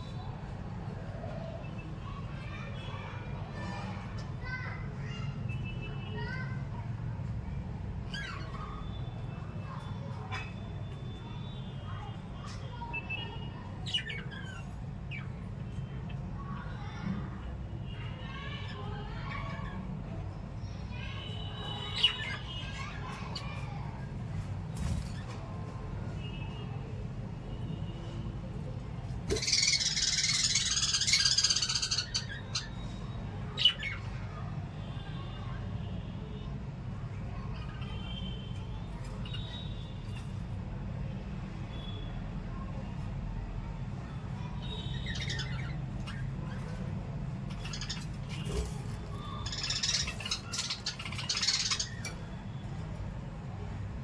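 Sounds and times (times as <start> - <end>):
parrots chattering: 8.0 - 8.9, 9.6 - 11.0, 12.4 - 16.8, 21.3 - 24.0, 27.7 - 34.6, 37.3 - 40.3, 44.2 - 53.4.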